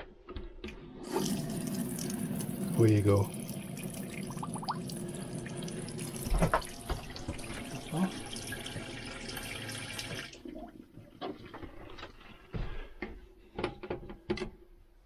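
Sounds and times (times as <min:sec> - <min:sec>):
tap water running into sink: 0:01.0 - 0:11.7.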